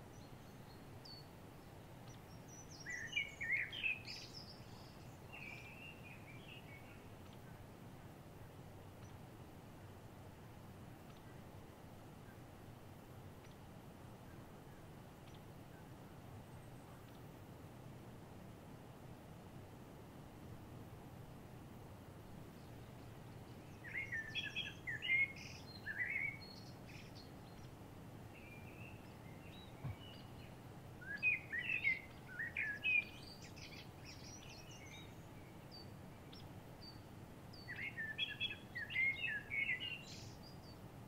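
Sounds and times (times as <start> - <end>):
faint steady hiss: 0.0 - 41.0
songbird warbling: 0.1 - 7.7, 22.6 - 27.8, 28.4 - 40.8.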